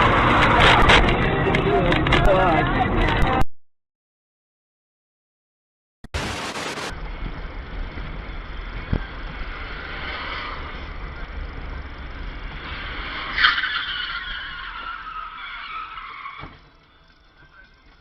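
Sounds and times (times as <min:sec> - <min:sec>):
car tyres screeching: 0:00.0 - 0:02.6, 0:06.2 - 0:16.9
moving car rumble: 0:00.0 - 0:03.4, 0:06.0 - 0:18.0.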